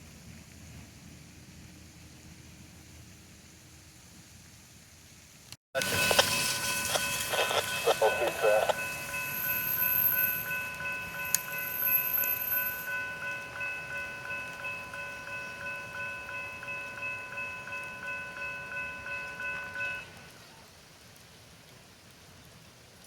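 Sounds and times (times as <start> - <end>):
railroad crossing bell ringing: 5.8 - 20.3.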